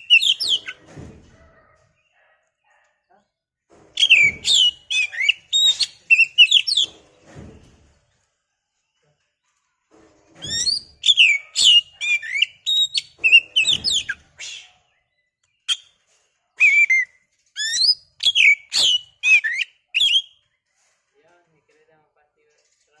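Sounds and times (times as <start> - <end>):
bird singing whistled notes: 0.0 - 0.8, 4.0 - 7.0, 10.5 - 14.7, 16.6 - 20.4.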